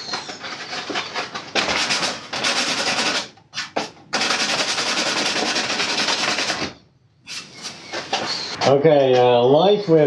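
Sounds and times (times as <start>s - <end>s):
sandpaper scraping filler: 0.8s - 6.7s, 7.3s - 8.6s.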